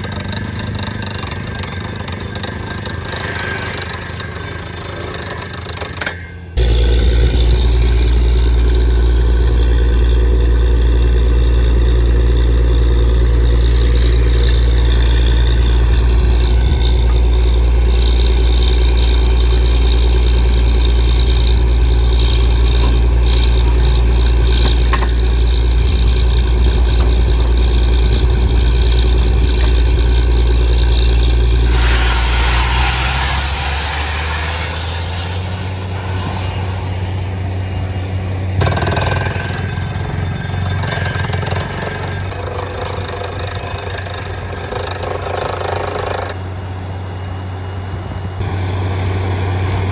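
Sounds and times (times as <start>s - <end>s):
drilling rig engine drone: 0.0s - 49.9s
rushing noise: 31.1s - 39.9s.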